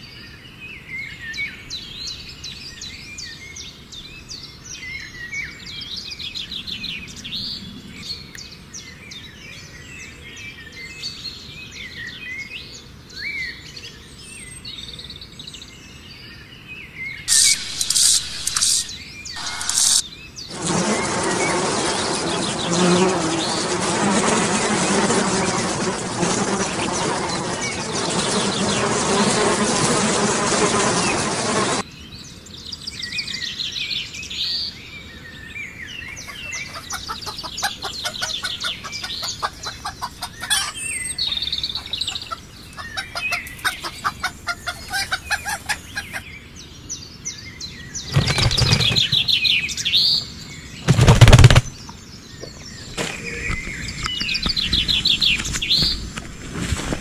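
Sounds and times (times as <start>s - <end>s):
birds chirping in trills: 16.9s - 29.6s, 32.5s - 56.1s
bird wings flapping: 17.3s - 31.8s, 48.1s - 49.4s, 50.8s - 51.8s.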